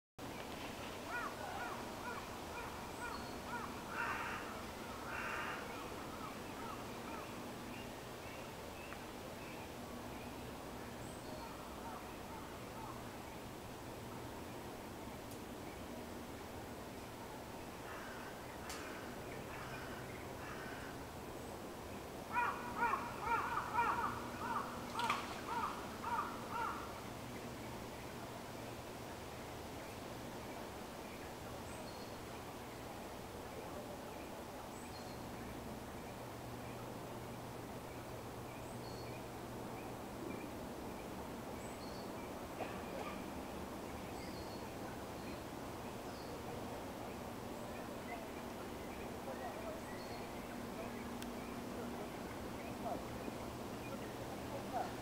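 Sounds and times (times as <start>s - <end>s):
background hiss: 0.2s - 55.0s
crow cawing: 1.1s - 7.2s, 17.8s - 21.0s, 22.3s - 24.8s, 25.4s - 27.0s.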